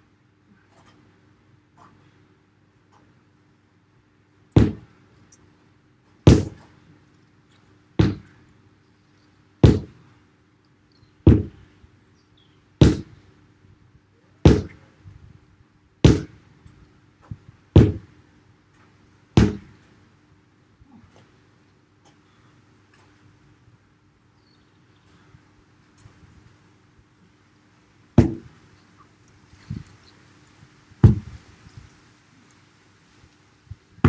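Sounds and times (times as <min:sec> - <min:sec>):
sledgehammer striking a tyre: 0:04.6 - 0:04.9, 0:06.3 - 0:06.6, 0:08.0 - 0:08.3, 0:09.6 - 0:10.0, 0:11.3 - 0:11.6, 0:12.8 - 0:13.2, 0:14.5 - 0:14.8, 0:16.0 - 0:16.4, 0:17.8 - 0:18.1, 0:19.4 - 0:19.7, 0:28.2 - 0:28.5, 0:31.0 - 0:31.4.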